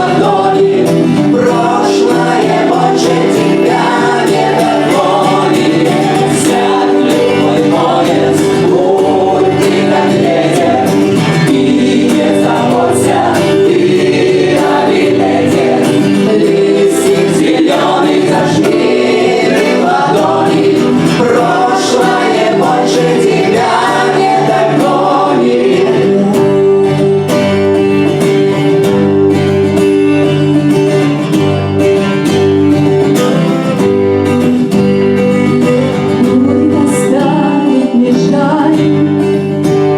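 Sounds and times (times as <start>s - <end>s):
group of people singing: 0.0s - 28.1s, 35.4s - 39.9s
acoustic guitar: 0.0s - 39.9s.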